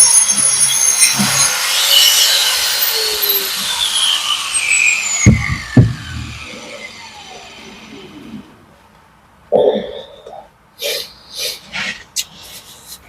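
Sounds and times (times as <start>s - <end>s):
angle grinder spinning down: 0.0s - 8.7s
loud thump: 5.2s - 6.5s.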